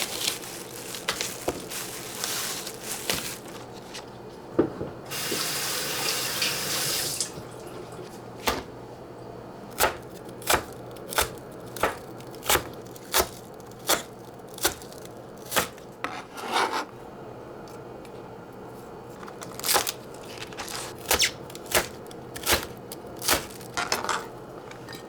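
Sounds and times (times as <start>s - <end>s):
kitchen tap running: 5.1s - 8.0s.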